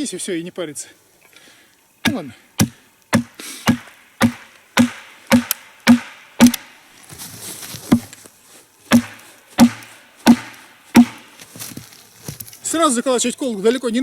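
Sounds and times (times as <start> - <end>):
hammer knocking wooden wedge: 2.0 - 6.7, 8.9 - 11.3.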